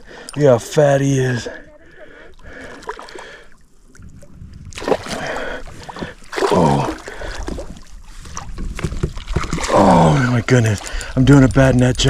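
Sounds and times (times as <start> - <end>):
water splashing and sloshing: 0.0 - 12.0
fish thrashing in water: 4.7 - 12.0.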